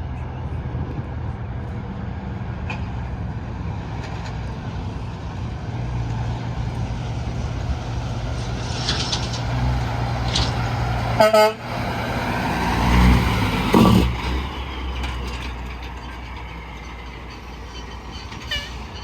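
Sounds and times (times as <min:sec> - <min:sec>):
truck diesel engine hum: 0:00.0 - 0:19.0
tyre and road noise: 0:00.0 - 0:19.0.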